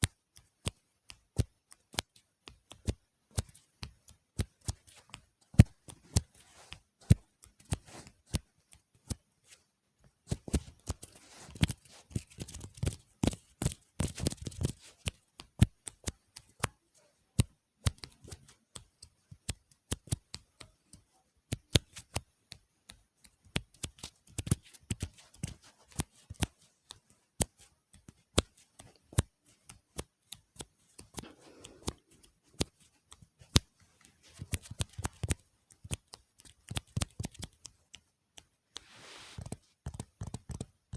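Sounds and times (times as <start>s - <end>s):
soft rustling: 4.6s - 15.2s, 23.8s - 35.2s, 38.7s - 39.8s.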